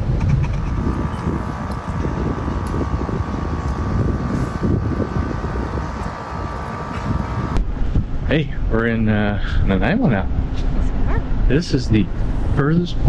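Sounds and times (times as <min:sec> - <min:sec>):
wind on microphone: 0:00.0 - 0:08.3
boat engine whine: 0:00.5 - 0:07.7.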